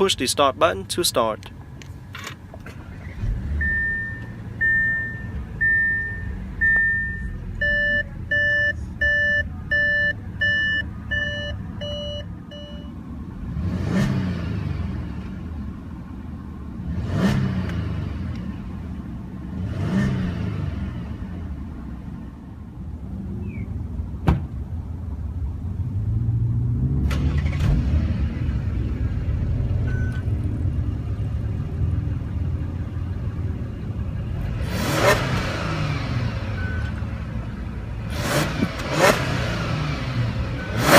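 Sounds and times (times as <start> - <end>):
car engine starting and idling: 0.0 - 40.9
car engine revving: 2.6 - 7.7, 13.3 - 15.8, 16.8 - 21.8, 25.8 - 40.9
car warning chimes: 3.6 - 13.0.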